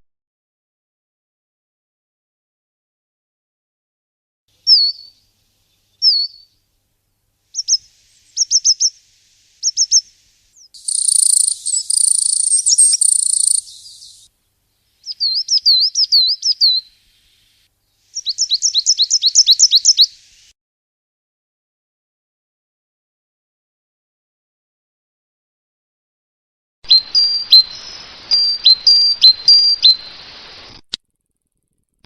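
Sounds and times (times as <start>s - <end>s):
small songbird singing: 4.5s - 6.8s, 7.5s - 20.5s, 26.9s - 30.7s.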